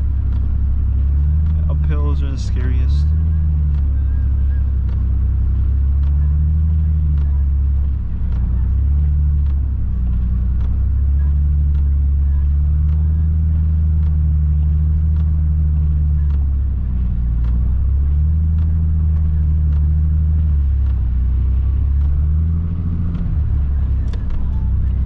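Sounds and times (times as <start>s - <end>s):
car engine droning: 0.0s - 25.0s.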